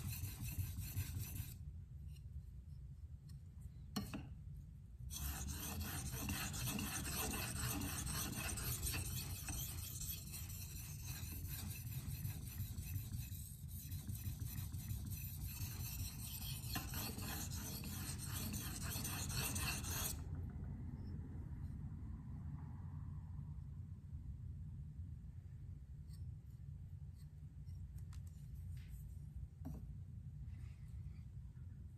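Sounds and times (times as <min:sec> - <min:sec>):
knife scraping on whetstone: 0:05.1 - 0:20.2.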